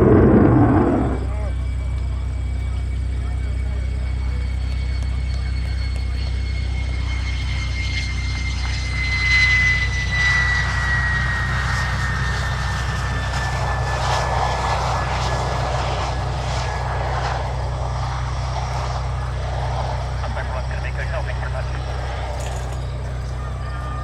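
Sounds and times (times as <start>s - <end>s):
rushing noise: 0.0s - 1.4s
jet engine whine: 0.0s - 24.0s
low drone: 0.0s - 24.0s.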